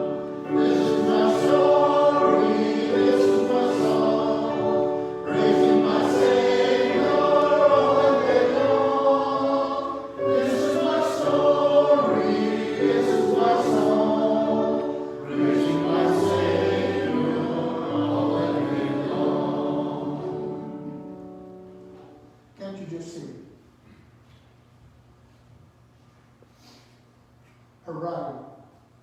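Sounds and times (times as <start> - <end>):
choir singing a hymn: 0.0 - 22.3.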